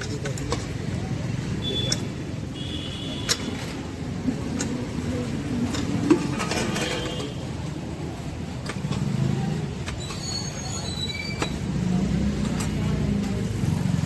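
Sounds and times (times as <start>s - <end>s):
road traffic rumble: 0.0s - 14.0s
faint high squeal: 10.0s - 11.5s.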